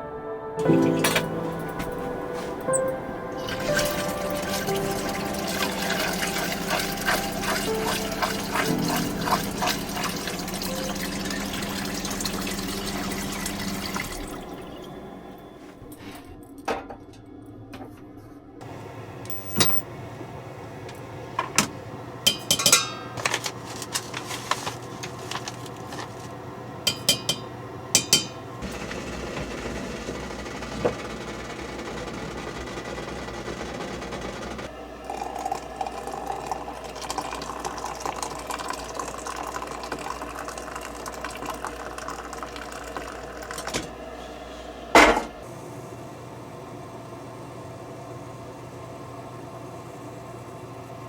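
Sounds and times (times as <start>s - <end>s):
dishes and utensils clinking: 0.6s - 14.1s, 22.3s - 26.3s, 26.9s - 28.4s, 45.0s - 45.4s.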